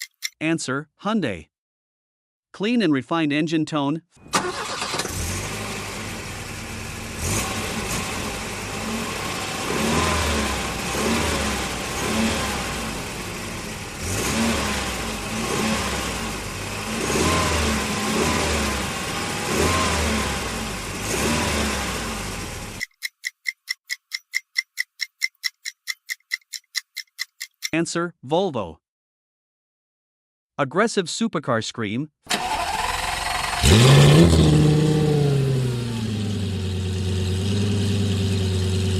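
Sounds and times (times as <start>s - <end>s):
car engine revving: 4.4s - 22.8s, 32.4s - 38.9s
countdown timer ticking: 22.8s - 27.8s.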